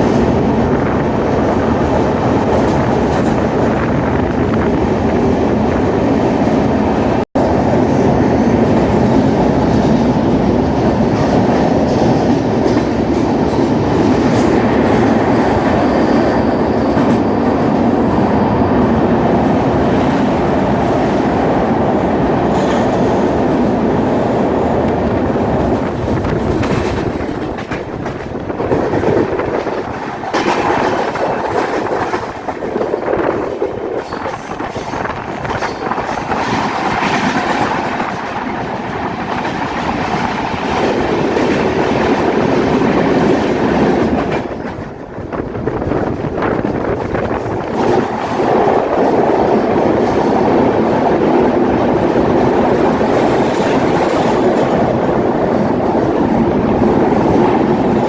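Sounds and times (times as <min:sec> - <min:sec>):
train wheels rumbling on rails: 0:00.0 - 0:58.0
train wheel knocks: 0:24.9 - 0:49.2.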